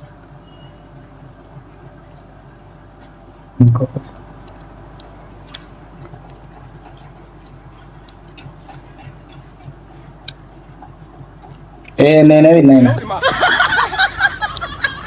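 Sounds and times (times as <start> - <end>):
low hum: 0.0 - 12.0
chewing and mouth noises: 0.0 - 12.3.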